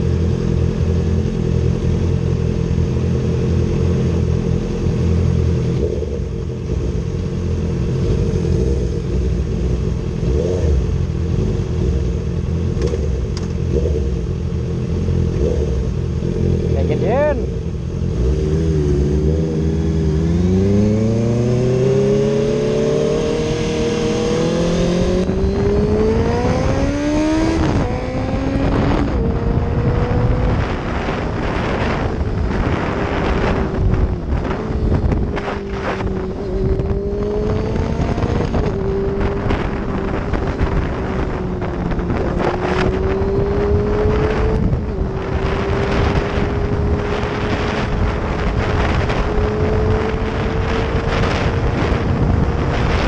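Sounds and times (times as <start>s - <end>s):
motorcycle engine accelerating: 0.0s - 53.0s
wind rushing: 16.7s - 53.0s.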